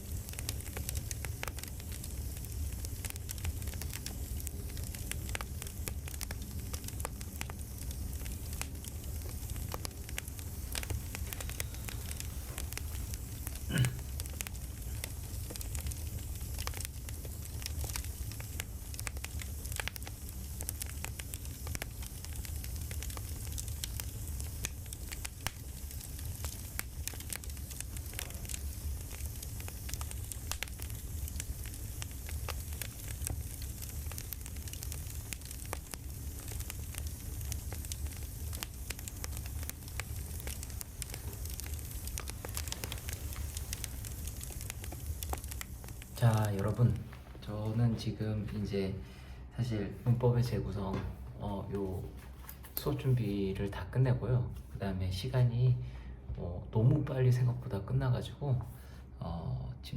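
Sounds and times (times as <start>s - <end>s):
campfire crackling and popping: 0.0s - 49.4s
low fire rumble: 0.0s - 59.8s.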